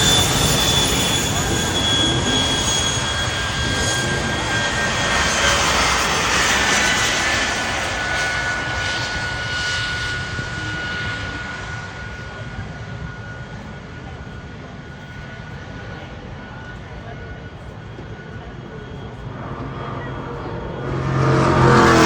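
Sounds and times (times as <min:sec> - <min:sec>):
race truck engines droning: 0:00.0 - 0:09.4, 0:18.3 - 0:22.0.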